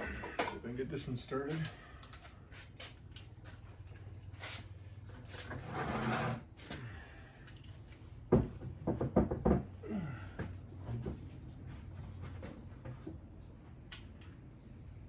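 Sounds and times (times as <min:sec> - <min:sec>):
rasping scrape: 0:05.4 - 0:06.5
metal parts clinking and knocking: 0:07.5 - 0:08.0.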